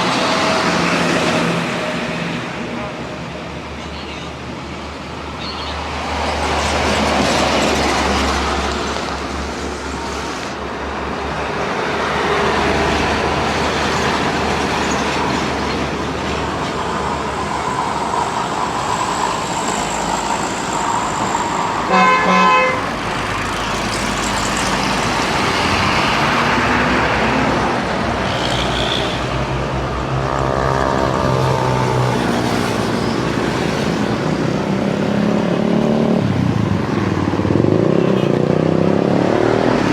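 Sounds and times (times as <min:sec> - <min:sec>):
road noise: 0:00.0 - 0:39.9
truck engine: 0:00.0 - 0:39.9
vehicle horn blast: 0:21.9 - 0:22.9.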